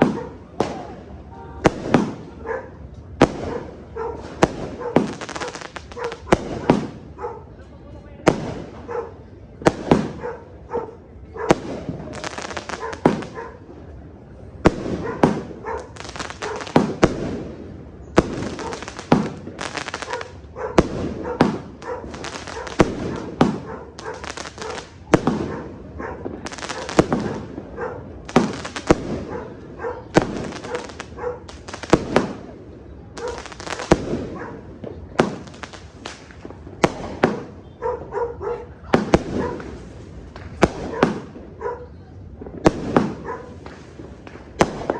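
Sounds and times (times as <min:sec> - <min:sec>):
fireworks bangs echoing: 0:00.0 - 0:44.9.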